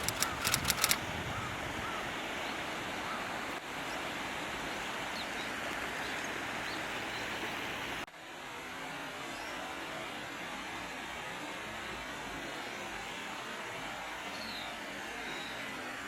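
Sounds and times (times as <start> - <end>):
sharp clicks: 0.0 - 1.0
outdoor background hiss: 0.0 - 16.0.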